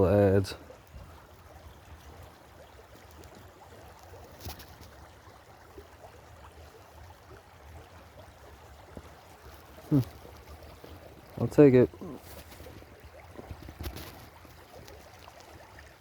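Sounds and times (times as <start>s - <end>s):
shallow creek flowing: 0.0s - 16.0s.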